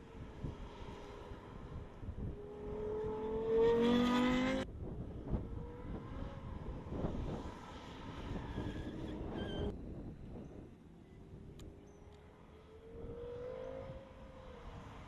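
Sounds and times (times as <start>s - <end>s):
car engine accelerating: 2.4s - 4.7s.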